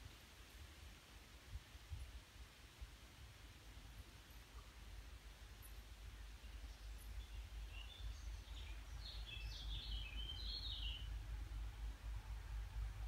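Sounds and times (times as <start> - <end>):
steady low rumble: 4.8 - 13.0.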